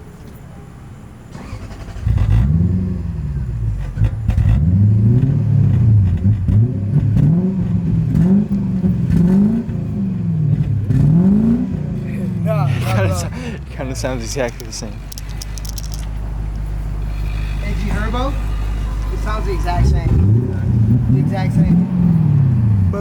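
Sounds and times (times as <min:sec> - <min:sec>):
car engine revving: 0:01.3 - 0:23.0.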